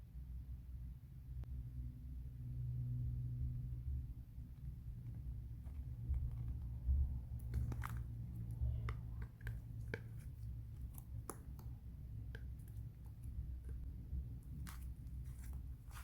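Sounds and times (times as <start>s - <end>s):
steady low hum: 0.0s - 16.0s
slime squishing by hand: 4.7s - 16.0s.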